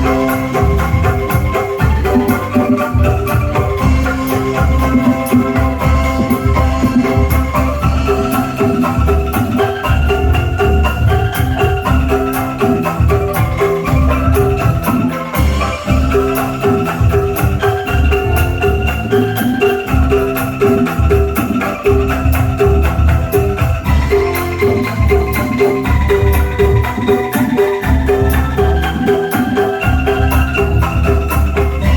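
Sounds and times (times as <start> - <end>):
bamboo percussion music over bass beat: 0.0 - 31.9.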